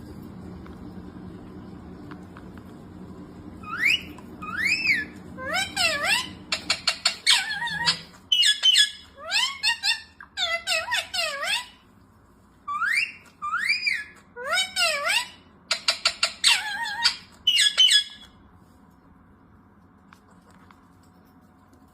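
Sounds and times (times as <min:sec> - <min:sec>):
high-pitched animal squeals: 0:03.7 - 0:11.8, 0:16.2 - 0:18.2.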